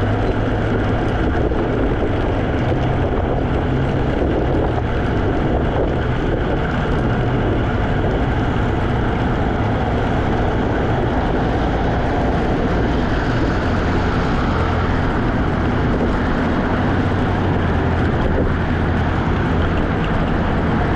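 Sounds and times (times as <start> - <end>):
electric scooter road noise: 0.0 - 20.9
wind rumble on microphone: 0.0 - 20.9.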